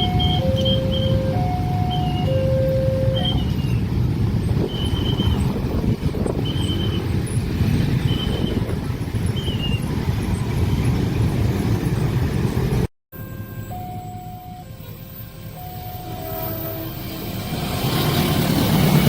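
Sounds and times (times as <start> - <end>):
crossing warning signal tone: 0.0 - 3.8, 4.4 - 9.9, 13.2 - 17.4
train wheels and engine rumbling: 0.0 - 19.0.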